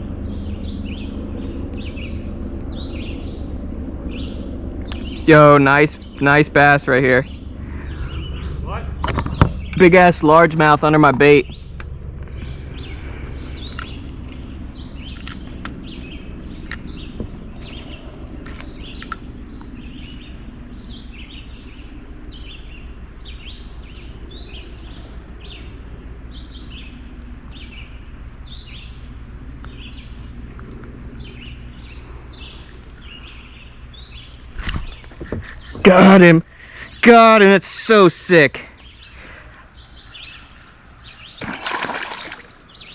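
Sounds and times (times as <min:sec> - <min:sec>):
bird chirping: 0:00.0 - 0:10.2, 0:11.3 - 0:30.3, 0:38.7 - 0:42.9
low rumble: 0:00.0 - 0:22.4
sharp clicks: 0:18.4 - 0:19.3.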